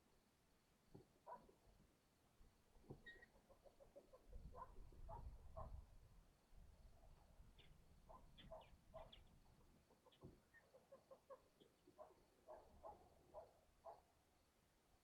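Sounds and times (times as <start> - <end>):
clucking bird calls: 2.8 - 5.8, 7.5 - 13.5.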